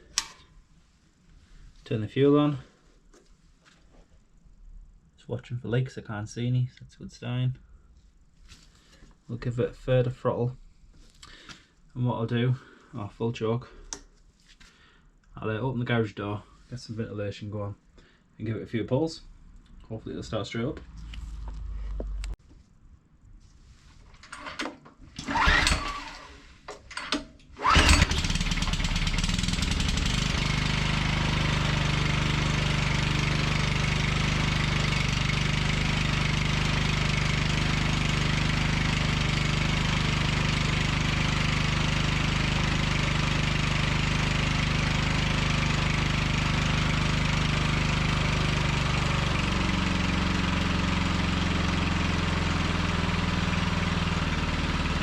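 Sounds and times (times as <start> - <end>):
petrol engine running: 25.2 - 26.3, 27.0 - 55.0.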